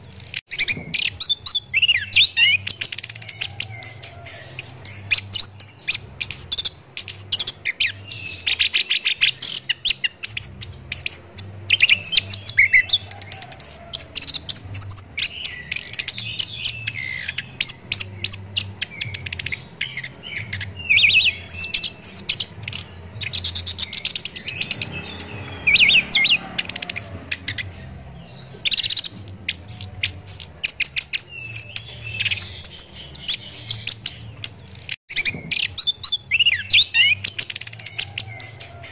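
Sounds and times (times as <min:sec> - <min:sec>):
thrush singing chirps and trills: 0:00.0 - 0:38.9.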